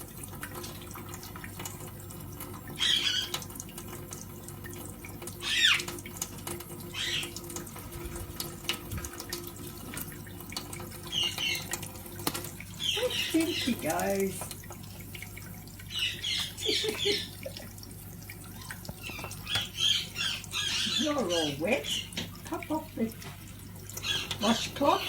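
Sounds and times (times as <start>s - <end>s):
small water splashes: 0.0s - 25.0s
tap water running into sink: 0.0s - 25.0s
parrot calls: 2.8s - 3.4s, 5.4s - 5.9s, 6.9s - 7.4s, 12.8s - 13.8s, 15.9s - 17.5s, 18.5s - 22.2s, 24.0s - 25.0s.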